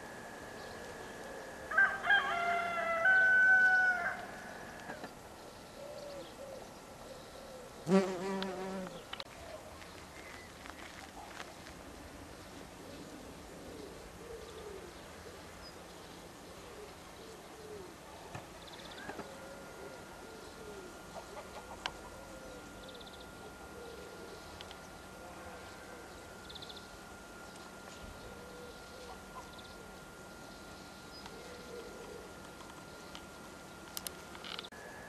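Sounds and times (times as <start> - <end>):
bird cooing: 5.7 - 9.7, 12.7 - 26.2, 28.0 - 30.0, 31.2 - 33.0.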